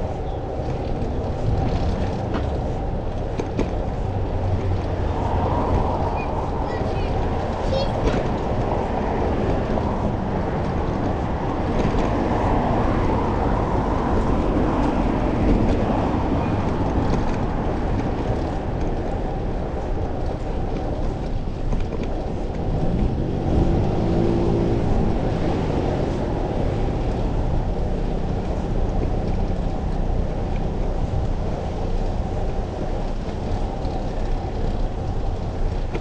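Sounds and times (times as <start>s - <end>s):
road traffic: 0.0s - 36.0s
wind rush on microphone: 0.0s - 36.0s
vehicle engine passing: 22.6s - 30.2s.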